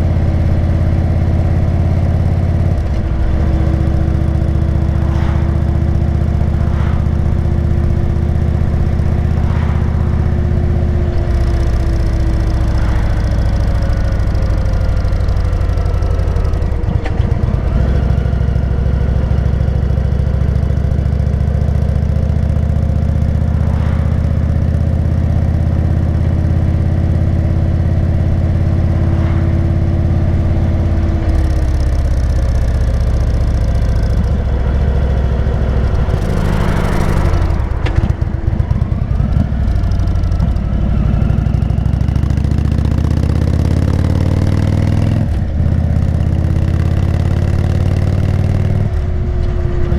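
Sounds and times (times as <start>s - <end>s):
motorcycle engine cruising: 0.0s - 49.9s
short rush of noise: 4.8s - 14.0s, 23.3s - 25.0s, 28.7s - 31.7s.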